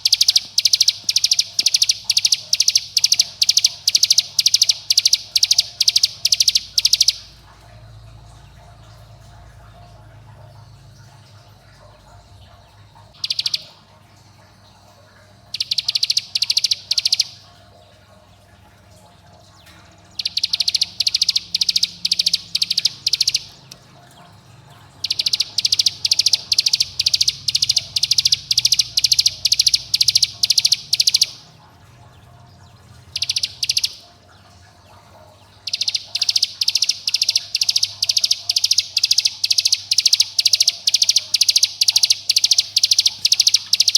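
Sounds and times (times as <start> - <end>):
bird singing rapid high notes: 0.0 - 7.4, 13.2 - 13.8, 15.5 - 17.4, 20.2 - 23.8, 24.8 - 31.6, 32.7 - 34.1, 35.6 - 43.9.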